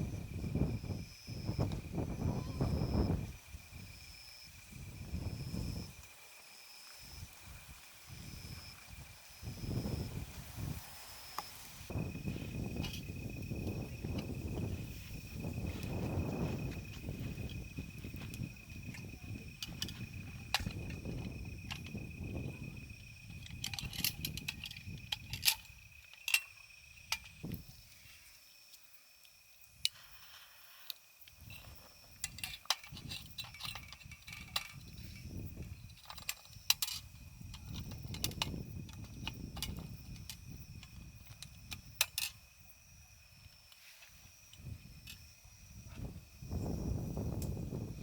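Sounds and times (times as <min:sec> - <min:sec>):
wind gusts on microphone: 0:00.0 - 0:06.1, 0:07.0 - 0:26.1, 0:26.7 - 0:27.9, 0:31.4 - 0:48.0
high insect trill: 0:00.0 - 0:48.0
clicks of camping gear handled: 0:12.6 - 0:14.7, 0:18.2 - 0:22.0, 0:23.3 - 0:27.6, 0:28.7 - 0:42.4.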